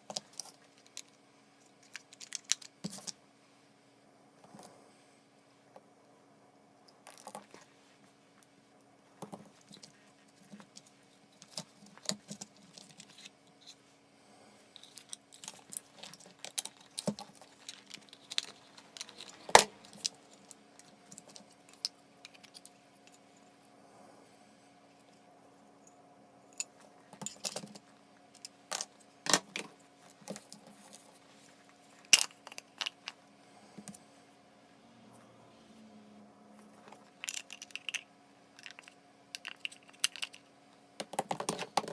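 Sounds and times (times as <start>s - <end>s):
faint steady hum: 0.0s - 41.9s
metal parts and tools clinking: 14.8s - 23.2s, 26.6s - 27.8s, 36.8s - 38.0s.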